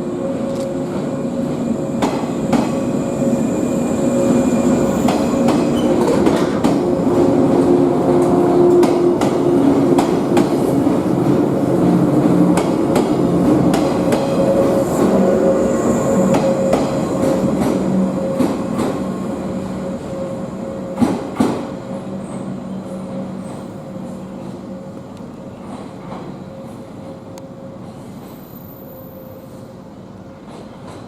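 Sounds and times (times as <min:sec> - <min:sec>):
train wheels clicking over rails: 0:00.4 - 0:03.4, 0:04.2 - 0:19.2, 0:20.9 - 0:23.8, 0:30.4 - 0:31.0.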